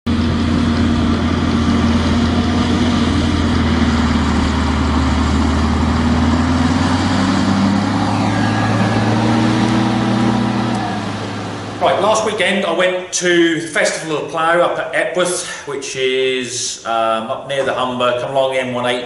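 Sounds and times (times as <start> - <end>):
tractor diesel engine running: 0.1 - 12.8.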